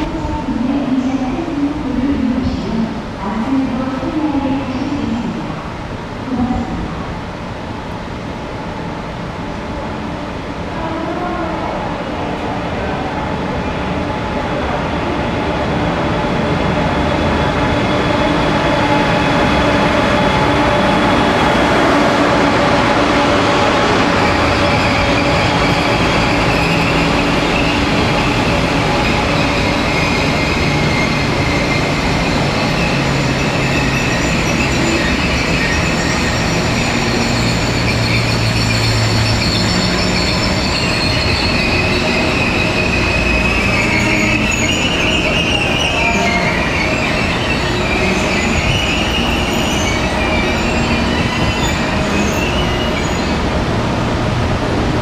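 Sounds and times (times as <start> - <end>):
train wheels rumbling on rails: 0.0 - 55.0
high wavering squeal: 24.1 - 53.4.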